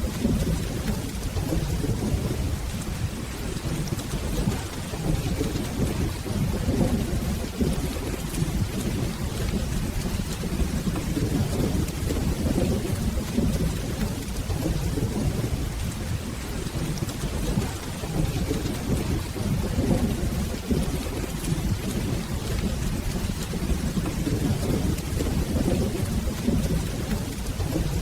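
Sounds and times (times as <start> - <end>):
rolling thunder: 0.0 - 28.0
steady rain: 0.0 - 28.0.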